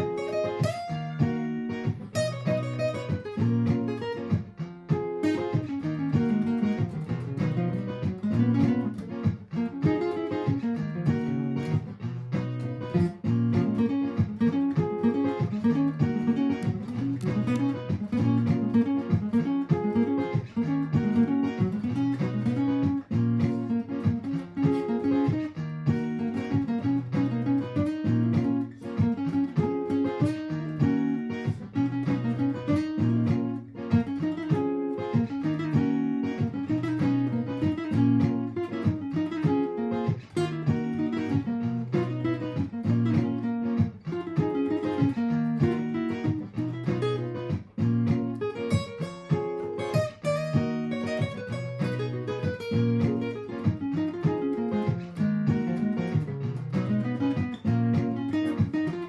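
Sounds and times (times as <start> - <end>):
acoustic guitar picked and strummed: 0.0 - 59.0
looped guitar part: 0.0 - 59.0.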